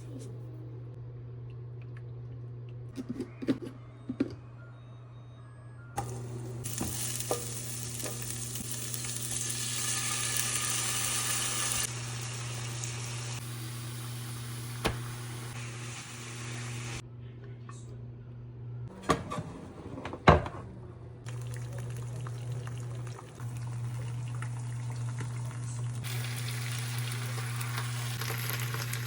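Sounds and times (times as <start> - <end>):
food sizzling in a frying pan: 6.0 - 17.0, 21.3 - 29.0.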